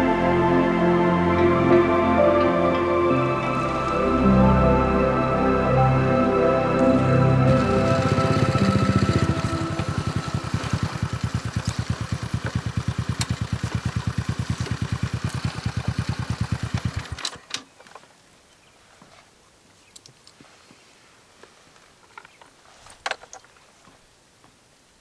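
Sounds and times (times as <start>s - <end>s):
small engine idling: 6.9s - 17.4s.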